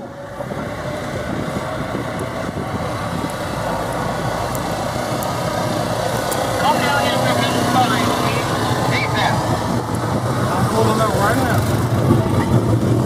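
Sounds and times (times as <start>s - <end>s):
car engine running: 0.0s - 13.0s
road and wind noise: 0.0s - 13.0s.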